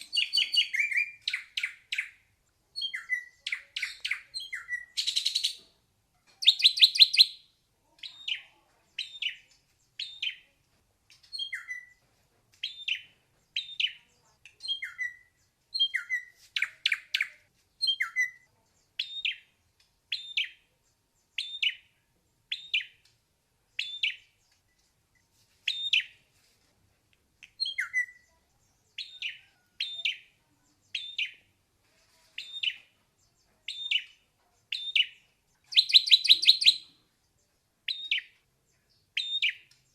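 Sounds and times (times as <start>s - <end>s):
bird whistled notes: 35.7s - 36.8s.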